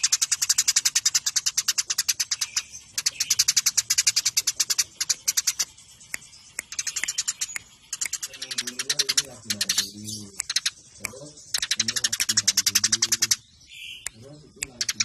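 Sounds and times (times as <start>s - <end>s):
sparrows chattering: 0.0s - 15.0s.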